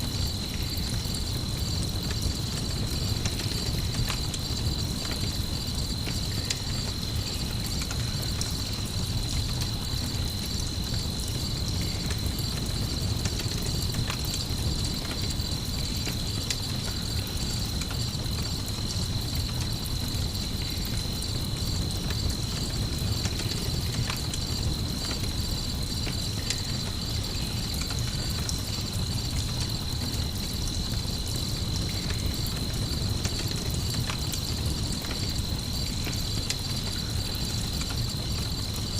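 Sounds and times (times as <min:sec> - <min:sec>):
campfire crackling: 0:00.0 - 0:38.9
crickets chirping: 0:00.0 - 0:38.9.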